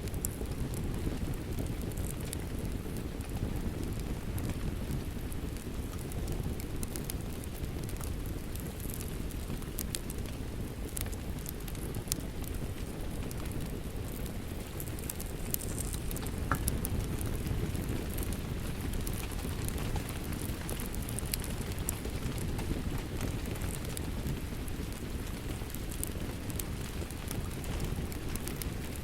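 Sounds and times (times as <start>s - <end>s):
fire pops and snaps: 0.0s - 29.0s
rain falling: 0.0s - 29.0s
wood fire crackling: 0.0s - 29.0s.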